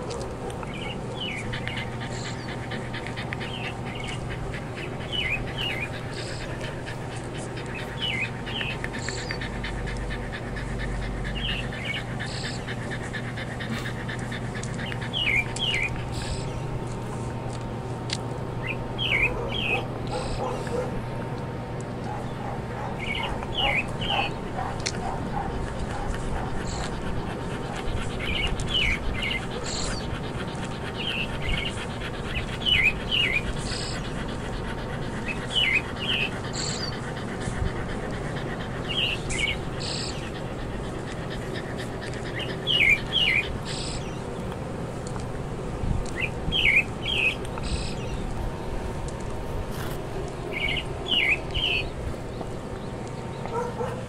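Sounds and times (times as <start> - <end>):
low background hum: 0.0 - 54.0
bird chirping: 0.6 - 16.7, 18.6 - 20.8, 38.8 - 44.3, 46.2 - 48.3, 50.5 - 54.0.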